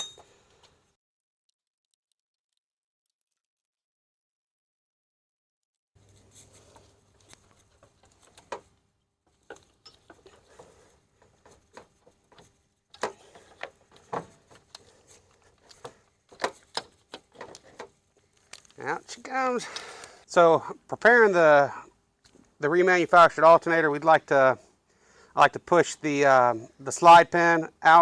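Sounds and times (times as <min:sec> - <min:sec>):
hand tools knocking and scraping metal: 0:09.4 - 0:18.0.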